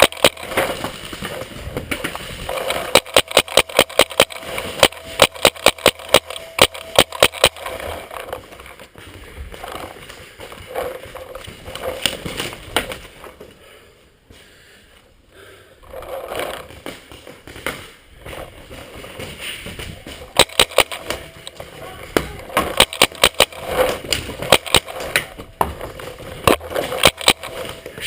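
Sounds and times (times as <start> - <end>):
paintball markers firing: 0.0 - 1.1, 1.9 - 8.4, 20.2 - 28.0.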